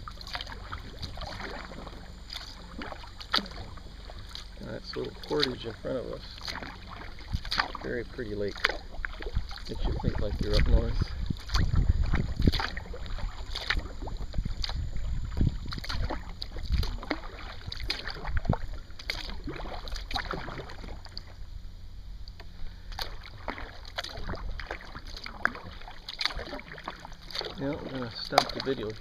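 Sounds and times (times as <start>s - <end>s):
paddle splashing water: 0.0s - 21.6s, 22.2s - 29.0s
wind on microphone: 6.8s - 20.7s.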